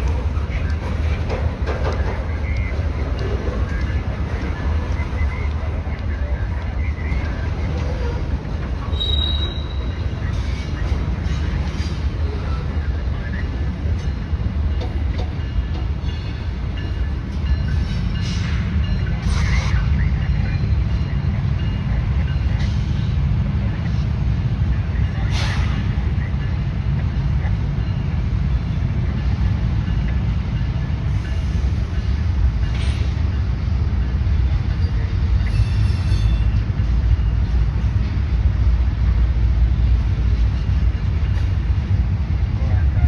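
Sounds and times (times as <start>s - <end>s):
train rumbling past: 0.0s - 43.0s
wheel and brake squeals: 8.8s - 10.7s.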